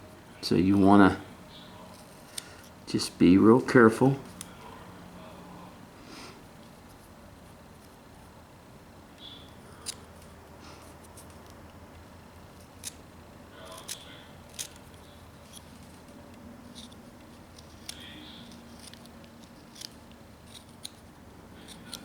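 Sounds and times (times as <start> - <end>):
knife blade clicking on wood: 16.7 - 21.0.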